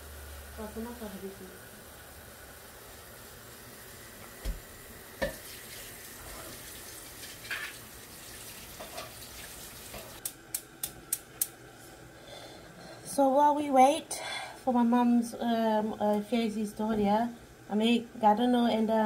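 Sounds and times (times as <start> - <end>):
onions sizzling in a pot: 0.0 - 10.7.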